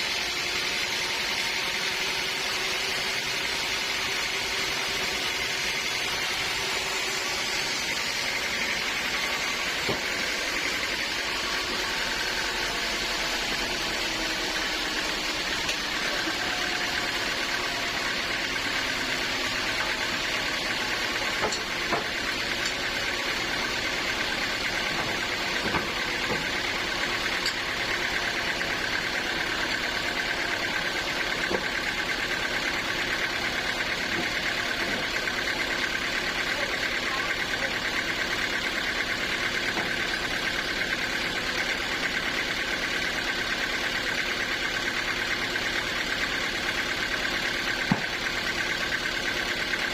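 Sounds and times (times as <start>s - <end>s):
sawmill machinery running: 0.0s - 49.9s.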